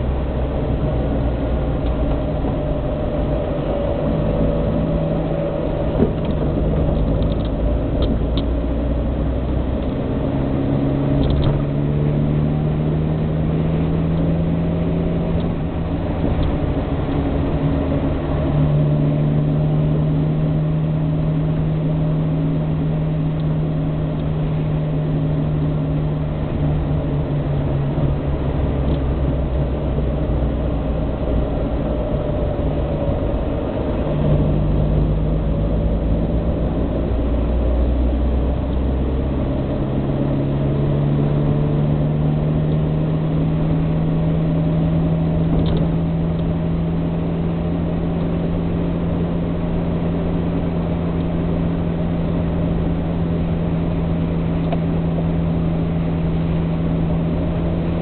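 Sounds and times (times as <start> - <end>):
car engine running: 0.0 - 58.0
low road rumble: 0.0 - 58.0.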